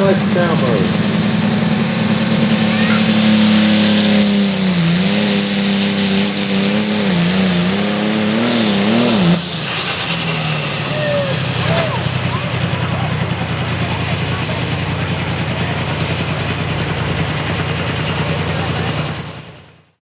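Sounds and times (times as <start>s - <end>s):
tractor diesel at full throttle: 0.0s - 20.0s
turbo whistle: 1.9s - 12.1s.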